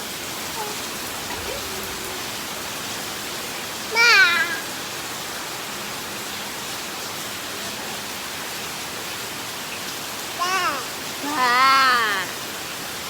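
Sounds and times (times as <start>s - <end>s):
heavy rain falling: 0.0s - 13.0s
high-pitched voice calling out: 3.9s - 4.8s, 10.4s - 12.4s.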